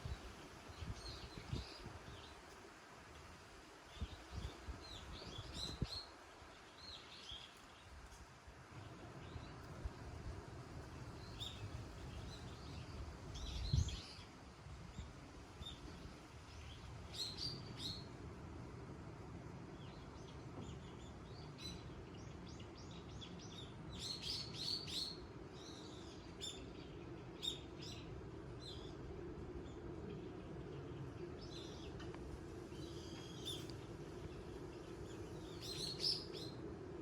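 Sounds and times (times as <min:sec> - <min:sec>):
small birds chirping: 0:32.7 - 0:36.6.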